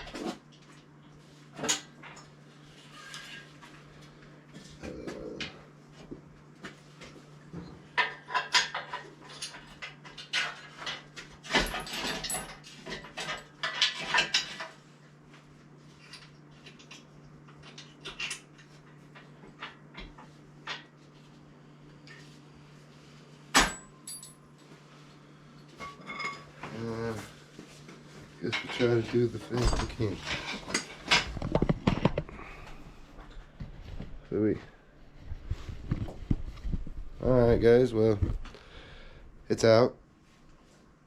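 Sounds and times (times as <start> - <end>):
steady low hum: 0.0 - 41.0
metal tools clanking and rattling: 8.0 - 14.8, 23.6 - 24.5, 25.7 - 27.3, 28.4 - 32.5.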